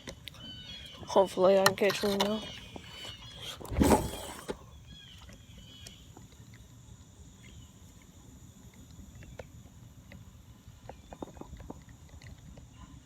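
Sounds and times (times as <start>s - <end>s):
small clicks and ticks: 5.2s - 13.0s.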